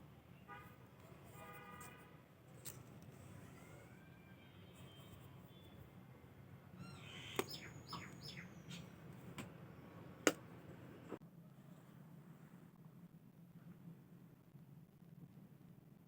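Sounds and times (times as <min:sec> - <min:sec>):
bird chirping: 0:06.8 - 0:09.0.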